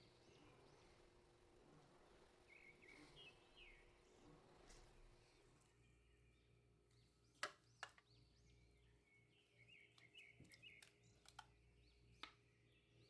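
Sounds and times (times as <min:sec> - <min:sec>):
faint sharp clicks: 0:10.0 - 0:11.6.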